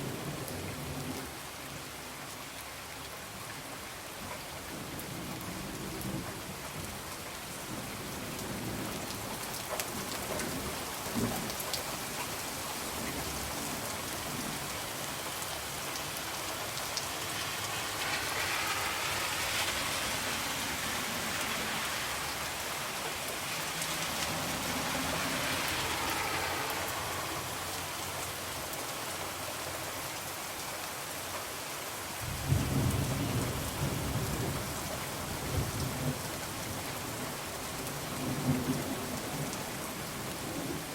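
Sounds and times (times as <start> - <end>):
rain pattering on a window: 0.0 - 40.9
low rumble of thunder: 32.2 - 36.8.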